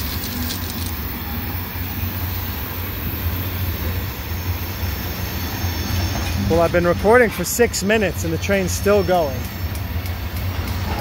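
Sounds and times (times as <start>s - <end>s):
rumble of wheels on rails: 0.0s - 11.0s.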